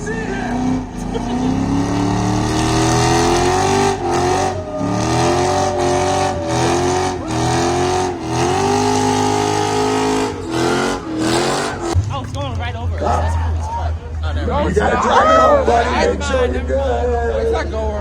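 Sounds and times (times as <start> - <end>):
spinning tyres hissing: 0.0 - 12.0
car engine at high revs: 0.0 - 12.1.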